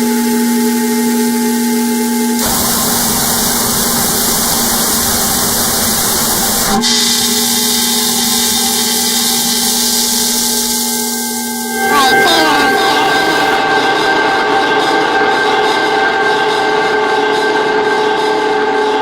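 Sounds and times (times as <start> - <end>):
hissing white noise: 2.4 - 11.7
synthesizer drone: 11.6 - 17.4.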